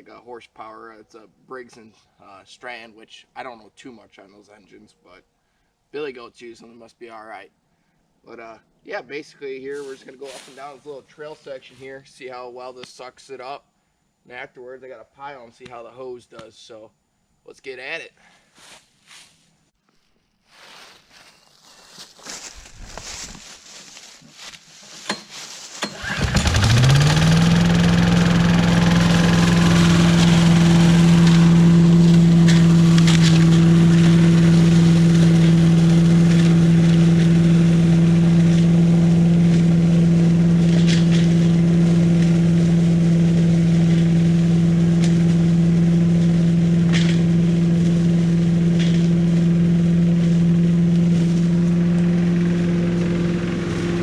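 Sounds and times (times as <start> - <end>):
small engine running: 25.8 - 54.0.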